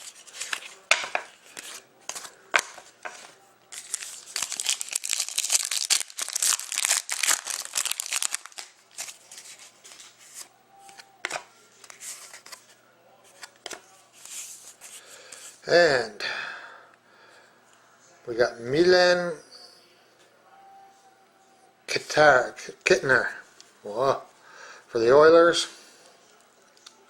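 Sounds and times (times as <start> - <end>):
card pack wrapper crinkling and tearing: 0.0 - 12.6
cards rustling and clicking: 0.0 - 15.6.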